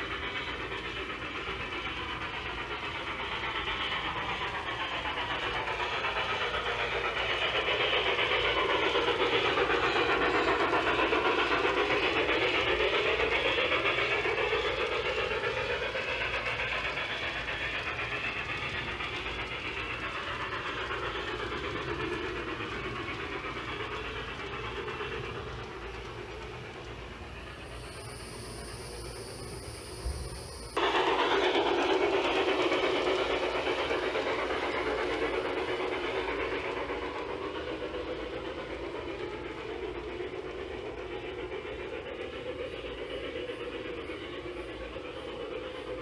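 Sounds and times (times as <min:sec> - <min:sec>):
model train running on track: 0:00.0 - 0:46.0.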